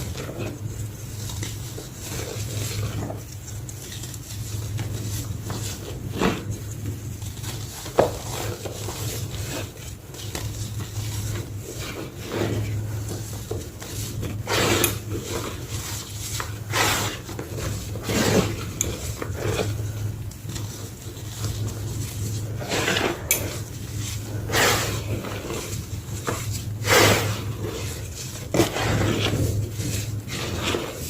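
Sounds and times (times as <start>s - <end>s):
chalk crunching: 0.0s - 31.0s.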